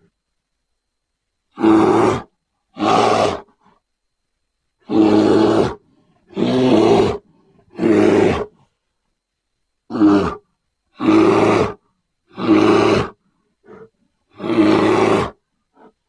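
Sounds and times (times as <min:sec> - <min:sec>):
grizzly bear roaring: 0:01.5 - 0:03.6, 0:04.8 - 0:08.7, 0:09.9 - 0:16.0.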